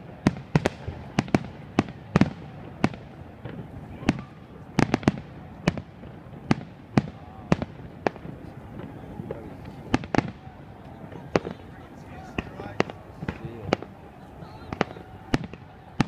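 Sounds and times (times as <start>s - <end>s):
fireworks bursting with bangs: 0.0s - 16.0s.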